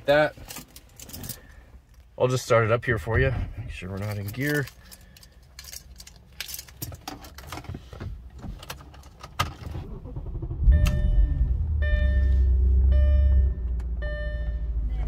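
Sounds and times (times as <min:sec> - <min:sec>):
keys jingling in ignition: 0:00.3 - 0:01.6, 0:03.9 - 0:07.6
car engine starting and idling: 0:07.3 - 0:15.0
dashboard warning chime: 0:10.7 - 0:15.0.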